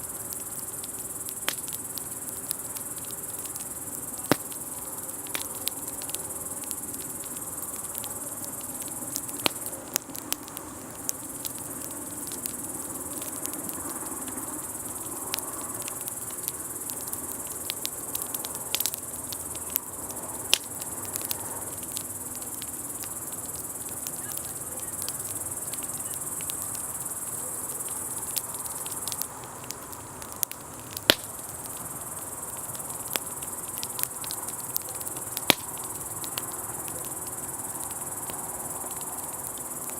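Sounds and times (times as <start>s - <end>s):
campfire crackling and popping: 0.0s - 39.9s
crickets chirring: 0.0s - 39.9s.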